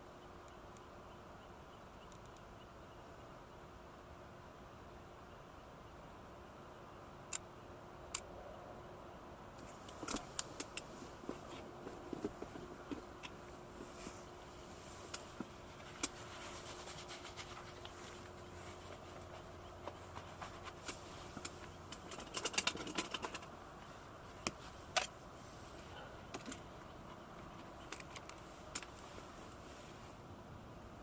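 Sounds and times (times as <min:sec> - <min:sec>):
steady background hiss: 0:00.0 - 0:31.0
camping gear clicking and clattering: 0:09.6 - 0:29.3.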